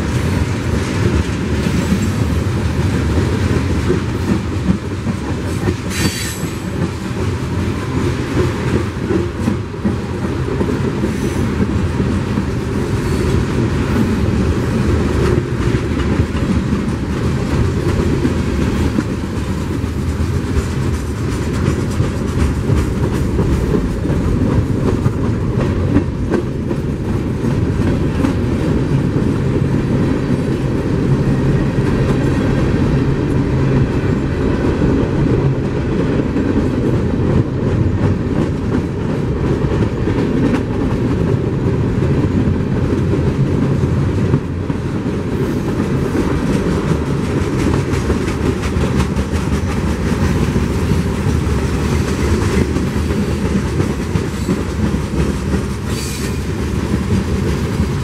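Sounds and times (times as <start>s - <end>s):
train wheels rumbling on rails: 0.0s - 58.0s
wheels clacking over rail joints: 0.0s - 58.0s
high wheel squeal: 5.9s - 6.5s.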